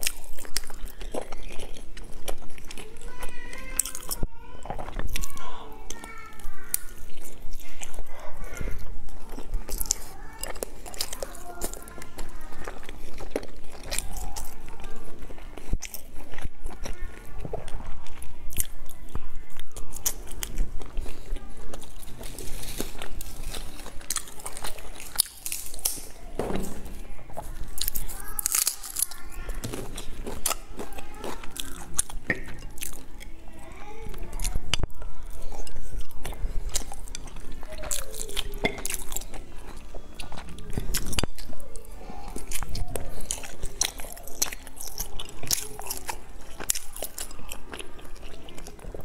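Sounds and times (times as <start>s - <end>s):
woman chewing with wet smacks: 0.0s - 26.4s, 27.2s - 49.0s.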